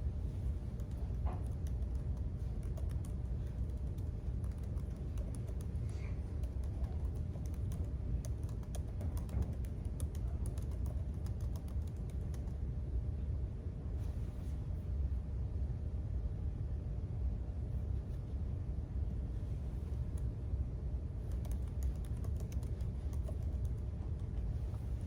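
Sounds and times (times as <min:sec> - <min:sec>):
low hum: 0:00.0 - 0:25.0
keyboard typing clicks: 0:00.8 - 0:12.6, 0:21.2 - 0:24.3.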